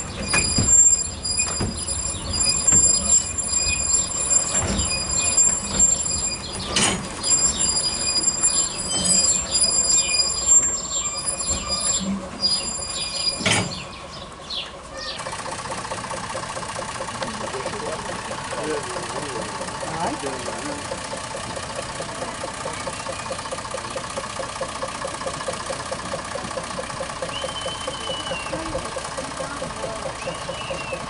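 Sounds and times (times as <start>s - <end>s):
high-pitched wheel squeal: 0.0s - 13.8s
train wheels clicking over track: 0.0s - 13.9s, 14.9s - 31.0s
train engine noise: 0.0s - 31.0s
wheel clunks: 0.0s - 31.0s.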